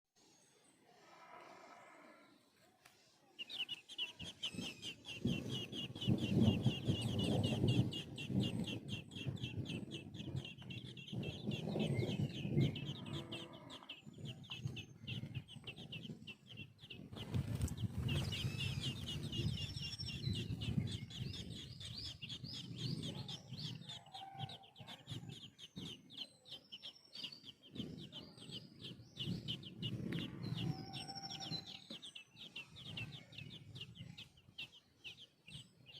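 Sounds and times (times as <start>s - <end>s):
nestling birds chirping: 0.2s - 35.9s
low rumbling noise: 3.8s - 23.8s.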